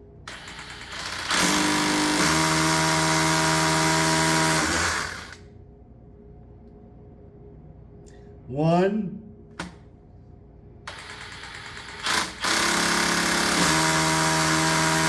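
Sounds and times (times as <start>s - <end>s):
power drill boring into concrete: 0.3s - 5.4s, 10.9s - 15.0s.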